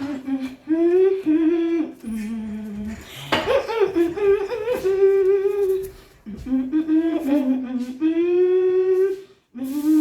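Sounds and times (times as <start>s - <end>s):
person humming: 4.0s - 10.0s.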